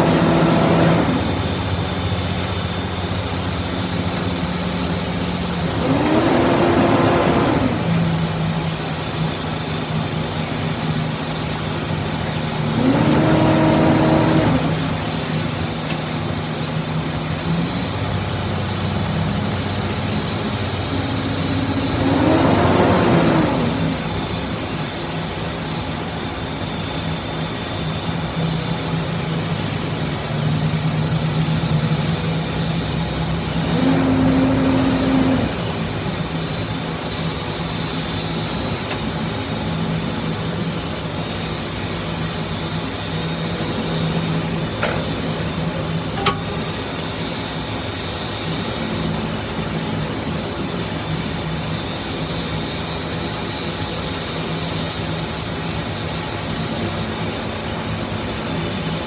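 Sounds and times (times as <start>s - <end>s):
tug engine humming: 0.0s - 25.8s, 27.0s - 49.2s
sharp click: 44.8s - 45.2s, 46.2s - 46.8s.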